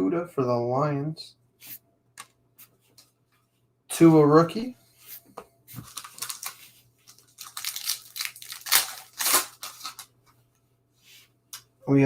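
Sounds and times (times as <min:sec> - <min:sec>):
cards and foil wrappers crinkling: 0:05.8 - 0:10.2.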